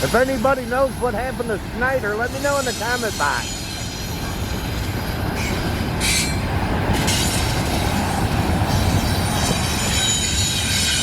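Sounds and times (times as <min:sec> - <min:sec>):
train wheels rumbling on rails: 0:00.0 - 0:11.0
high-pitched wheel squeal: 0:02.6 - 0:04.8, 0:09.1 - 0:11.0.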